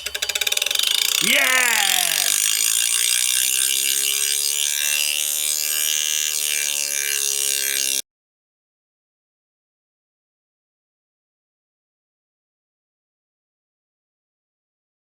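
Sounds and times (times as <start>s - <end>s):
hard disk whining grind: 2.3s - 8.0s.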